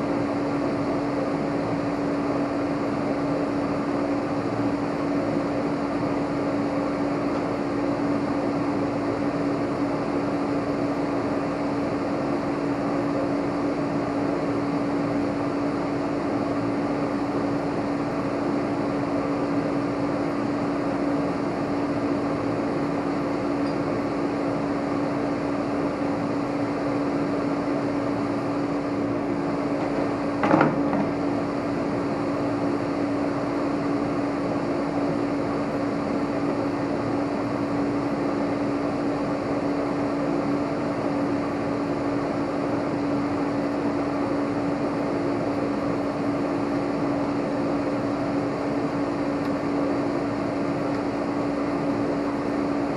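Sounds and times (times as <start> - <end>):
steady mechanical hum: 0.0 - 52.9
single knock: 30.4 - 31.2.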